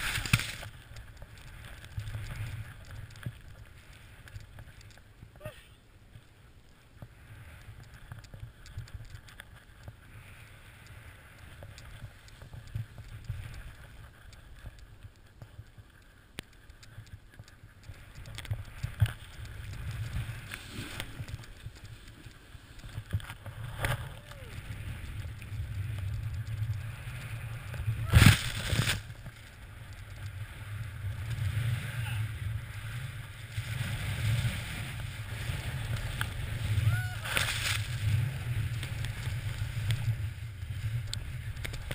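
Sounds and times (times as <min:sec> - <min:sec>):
snowboard carving through powder: 0:00.0 - 0:02.8, 0:18.1 - 0:41.9
small clicks and taps: 0:00.2 - 0:05.3, 0:06.7 - 0:10.0, 0:10.8 - 0:27.3
wind rumble on microphone: 0:06.9 - 0:41.9.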